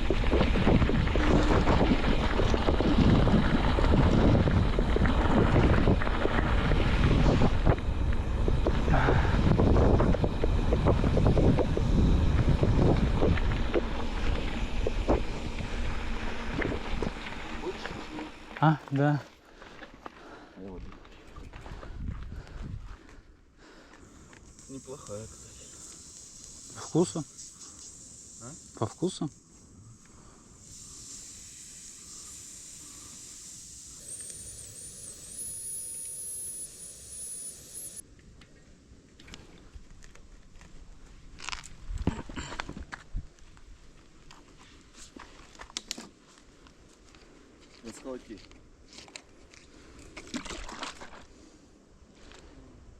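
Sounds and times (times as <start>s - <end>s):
wind buffeting microphone: 0.0s - 18.1s, 21.4s - 23.0s
vehicle rumbling on rough road: 0.0s - 18.8s
thin high wavering whine: 0.0s - 19.2s, 24.1s - 38.1s
insects chirring: 24.0s - 38.0s.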